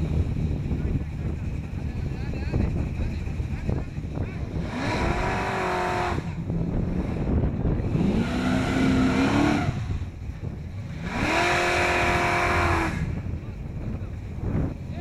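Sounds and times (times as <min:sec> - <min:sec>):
car engine revving hard: 0:04.4 - 0:10.1, 0:10.9 - 0:13.2.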